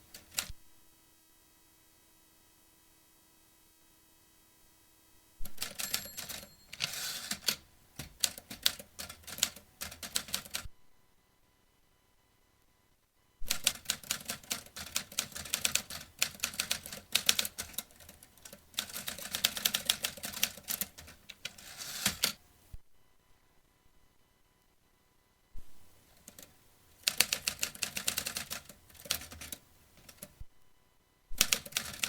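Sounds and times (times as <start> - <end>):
typewriter keys clacking: 5.5 - 10.6, 13.5 - 22.4, 26.2 - 30.4, 31.4 - 32.0.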